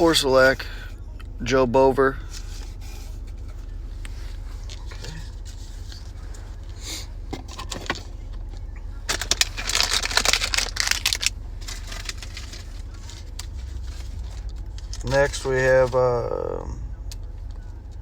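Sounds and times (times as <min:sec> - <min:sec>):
low steady hum: 0:00.0 - 0:18.0
wrapper tearing and crinkling: 0:09.1 - 0:14.1.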